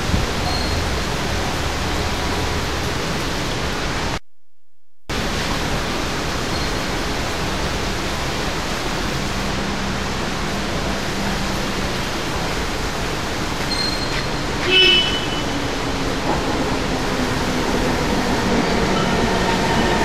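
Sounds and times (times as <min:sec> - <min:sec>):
electric train running noise: 0:05.2 - 0:20.0.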